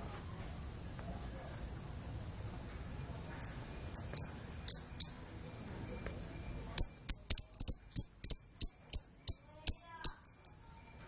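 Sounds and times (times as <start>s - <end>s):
canary chirping: 3.4s - 5.3s, 6.7s - 10.8s.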